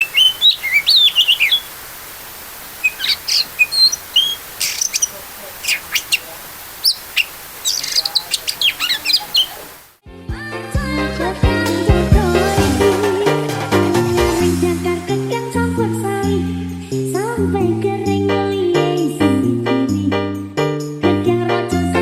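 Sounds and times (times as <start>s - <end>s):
bird chirping and whistling: 0.0s - 1.8s, 2.8s - 9.8s.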